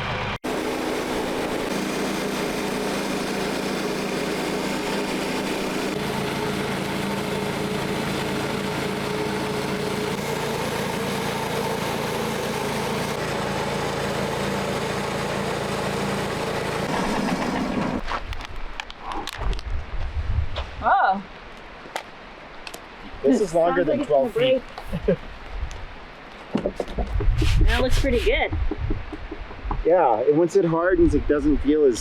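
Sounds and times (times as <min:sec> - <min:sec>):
sawmill engine running under load: 0:00.0 - 0:18.0
saw cutting through log: 0:00.4 - 0:18.1, 0:27.4 - 0:28.4.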